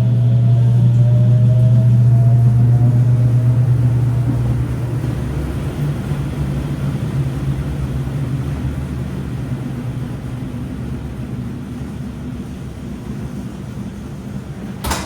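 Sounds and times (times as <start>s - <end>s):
washing machine running: 0.0s - 15.0s.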